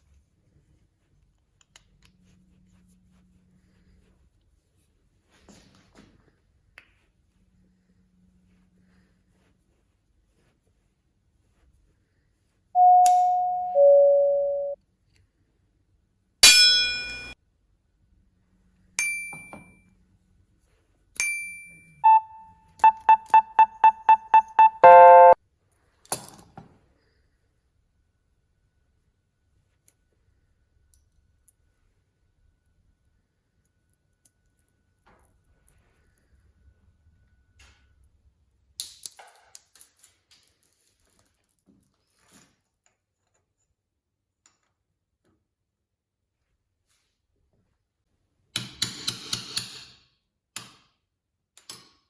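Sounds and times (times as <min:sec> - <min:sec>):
quick beeps: 0:12.8 - 0:14.8, 0:22.0 - 0:25.4
ringing metallic dings: 0:12.8 - 0:14.8, 0:16.4 - 0:17.4
short electronic tone: 0:12.8 - 0:14.8, 0:22.0 - 0:25.4.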